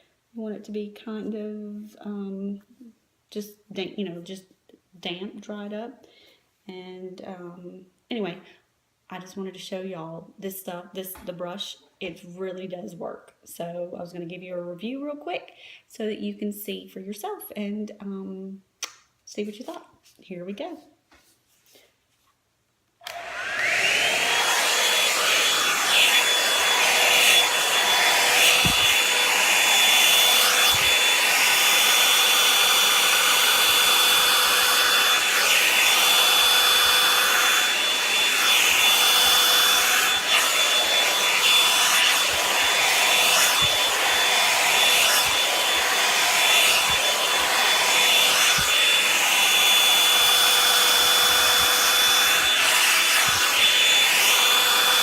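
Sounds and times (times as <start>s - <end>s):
hair dryer brush whine: 23.0s - 55.0s.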